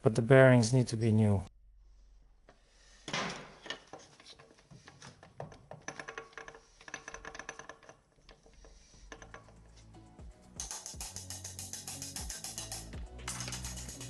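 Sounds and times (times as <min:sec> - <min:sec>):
metal tools clinking: 0:05.8 - 0:09.9.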